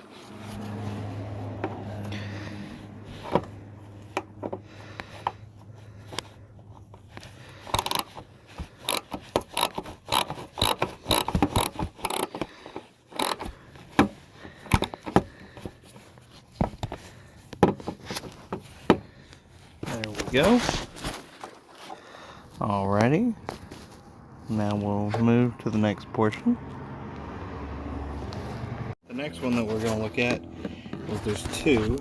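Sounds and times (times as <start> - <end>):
tool scraping and knocking: 6.9 - 22.0
socket ratchet clicking: 7.6 - 8.2, 8.8 - 12.5, 13.1 - 13.5.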